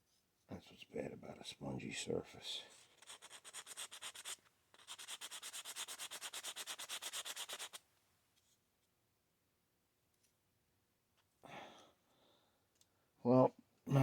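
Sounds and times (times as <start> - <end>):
sanding sponge scratching putty: 3.0 - 7.8.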